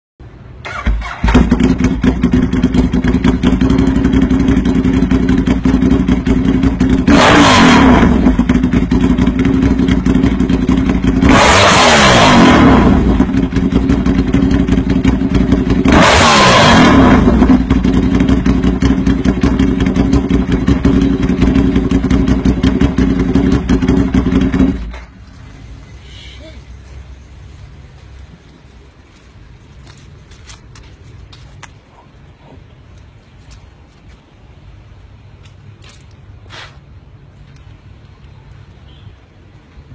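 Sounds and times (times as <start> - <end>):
engine starting idling and revving: 0.5 - 25.6.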